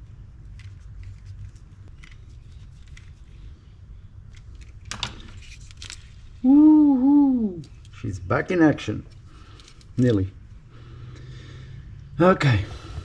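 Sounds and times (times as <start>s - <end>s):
man whooping: 6.4s - 7.7s.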